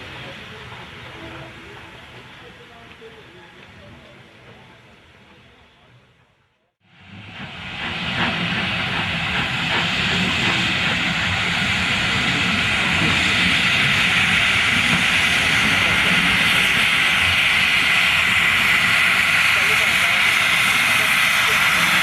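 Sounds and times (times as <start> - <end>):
steam locomotive hissing steam: 6.9 - 22.0.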